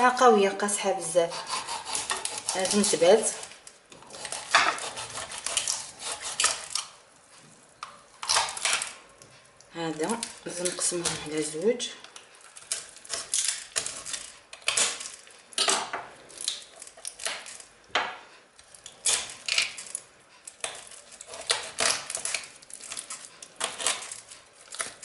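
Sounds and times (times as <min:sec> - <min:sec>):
blade cutting through carcass: 0:01.3 - 0:03.0.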